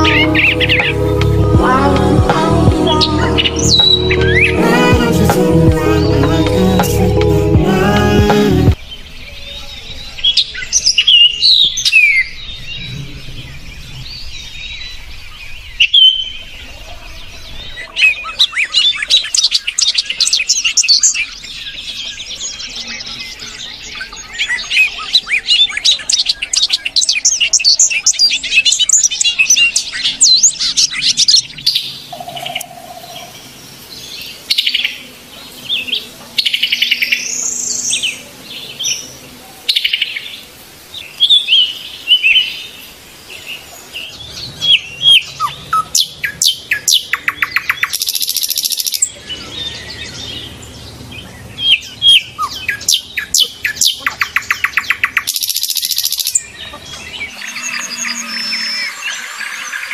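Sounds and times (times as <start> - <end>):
small birds chirping: 0.0 - 7.1, 7.8 - 59.9
bird trills: 8.9 - 33.5, 44.6 - 59.9.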